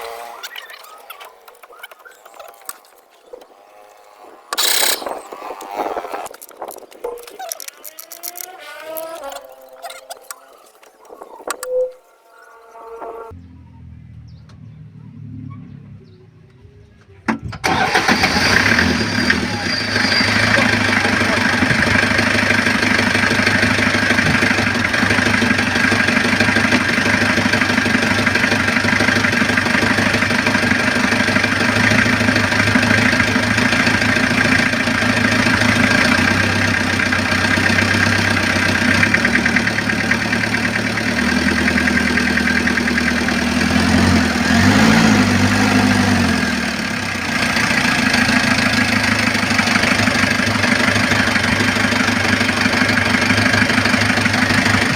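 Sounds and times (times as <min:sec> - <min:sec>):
engine revving: 0:00.0 - 0:06.5, 0:17.6 - 0:54.9
diesel engine idling: 0:17.6 - 0:54.9.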